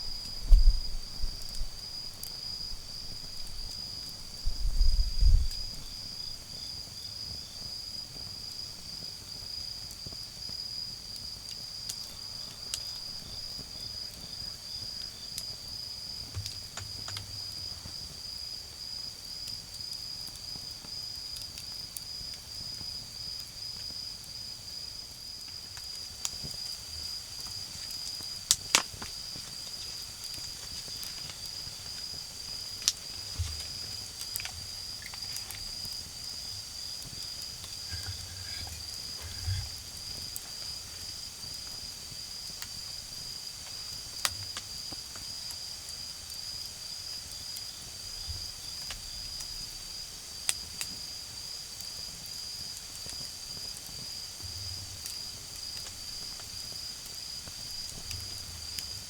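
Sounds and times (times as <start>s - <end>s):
insect chirping: 0.0s - 8.6s, 11.6s - 19.1s, 25.8s - 50.5s
wood fire crackling: 11.5s - 18.7s, 25.4s - 45.5s
insect trilling: 37.3s - 40.4s.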